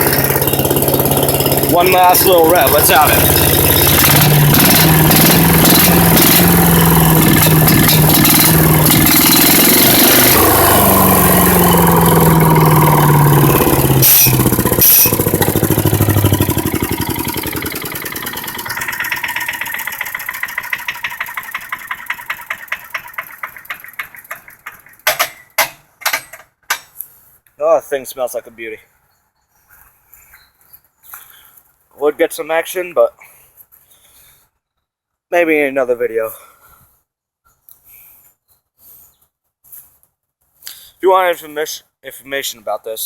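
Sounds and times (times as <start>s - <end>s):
wood chipper engine running: 0.0s - 25.5s.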